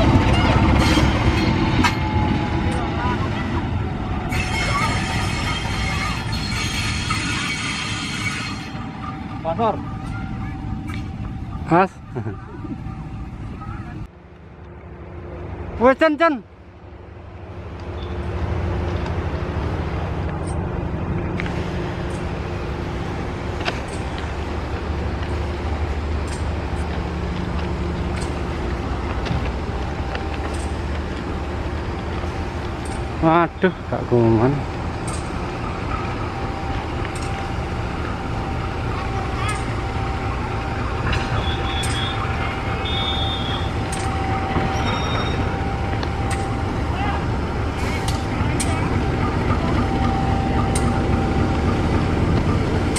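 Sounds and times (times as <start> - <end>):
diesel locomotive engine throbbing: 0.0 - 52.9
high-pitched squeaks: 4.3 - 11.1, 41.2 - 45.6.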